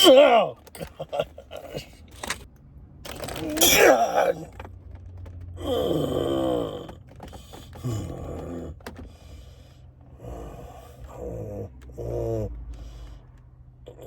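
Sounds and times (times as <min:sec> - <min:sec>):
man groaning in pain: 0:00.0 - 0:00.6, 0:03.4 - 0:04.5, 0:05.6 - 0:06.9
breathing: 0:09.0 - 0:11.2, 0:12.6 - 0:13.5.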